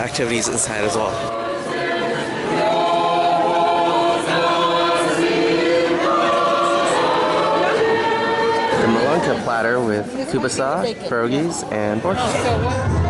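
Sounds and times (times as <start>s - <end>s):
choir singing sustained notes: 0.0s - 10.3s.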